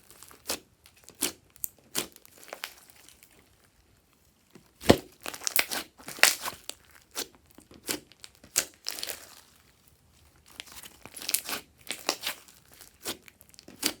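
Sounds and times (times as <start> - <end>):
slime crackling and clicking: 4.8 - 6.8.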